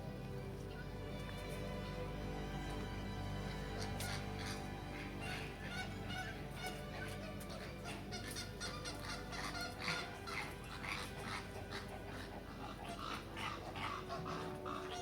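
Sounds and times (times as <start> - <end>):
birds calling: 3.5 - 15.0.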